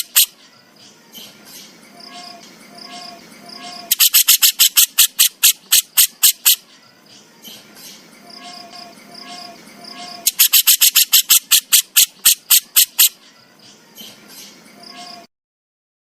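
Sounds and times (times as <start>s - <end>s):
bird harsh rattling call: 0.0s - 0.4s, 1.5s - 6.7s, 7.8s - 13.2s.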